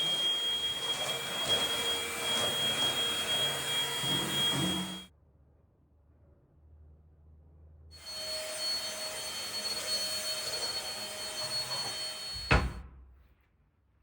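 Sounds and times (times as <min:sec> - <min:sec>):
electric appliance running: 0:00.0 - 0:05.1, 0:08.0 - 0:12.8.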